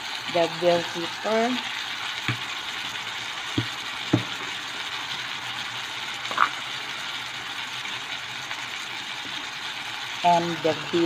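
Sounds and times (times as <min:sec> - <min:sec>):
vegetables sizzling in oil: 0:00.0 - 0:11.0
soft knocks: 0:03.6 - 0:04.4.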